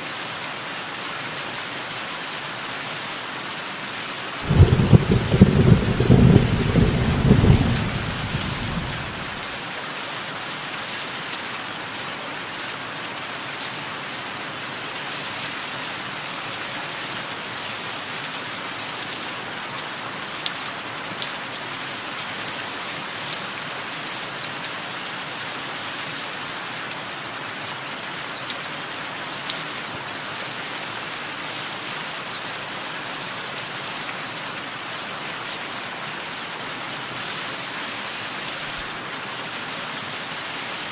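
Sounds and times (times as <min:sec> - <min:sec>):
steady rain: 0:00.0 - 0:40.9
thunder rolling: 0:04.4 - 0:09.6
birds chirping: 0:04.5 - 0:09.4.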